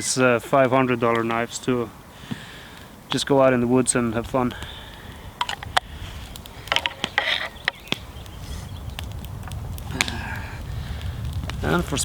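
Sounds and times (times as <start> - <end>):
gear handling clicks and knocks: 5.4 - 5.9, 6.6 - 7.9
steady low rumble: 7.9 - 12.0.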